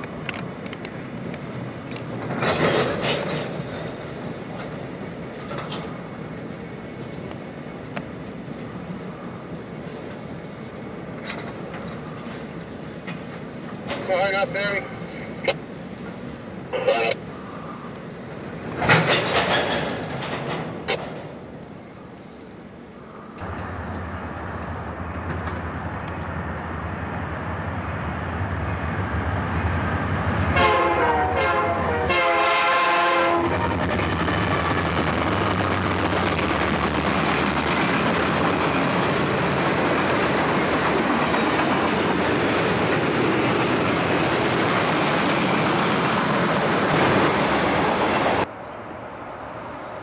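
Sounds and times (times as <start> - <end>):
boxcars rumbling on rails: 0.0 - 50.0
diesel locomotive engine rumbling: 0.0 - 50.0
multi-chime train horn blasts: 30.6 - 33.5.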